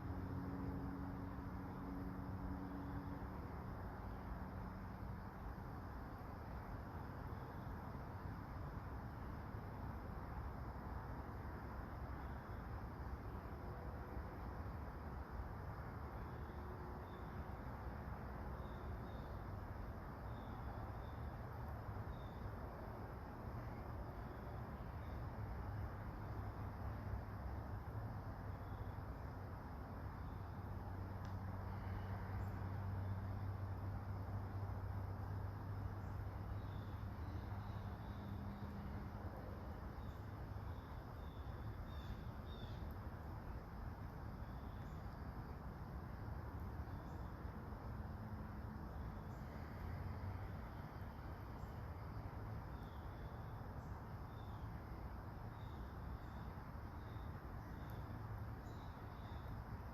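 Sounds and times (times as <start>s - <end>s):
light rain hiss: 0.0s - 59.9s
faint bird chirps: 40.0s - 43.0s, 44.4s - 45.1s.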